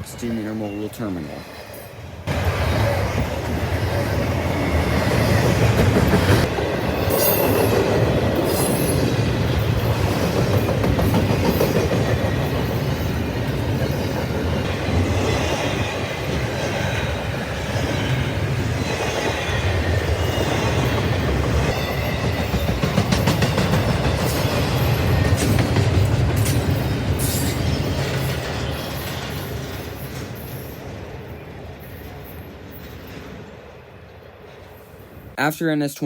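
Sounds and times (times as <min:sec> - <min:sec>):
train wheels clattering over rails: 0:02.3 - 0:31.1.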